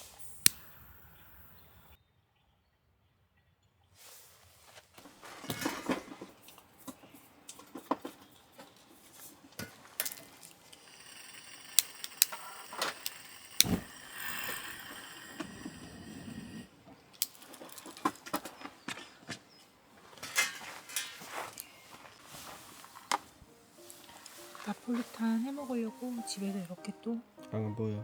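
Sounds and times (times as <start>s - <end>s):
rustling: 4.0s - 27.6s
small items clicking and rattling: 5.4s - 19.4s.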